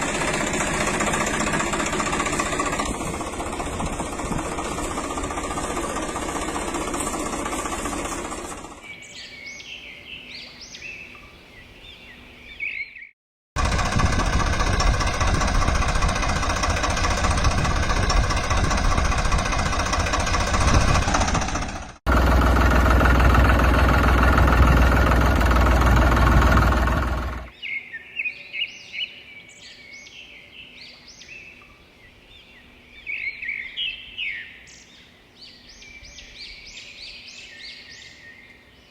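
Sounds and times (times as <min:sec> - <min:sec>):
heavy machinery engine running: 0:00.0 - 0:08.9, 0:13.6 - 0:27.5
birds chirping: 0:00.0 - 0:13.1.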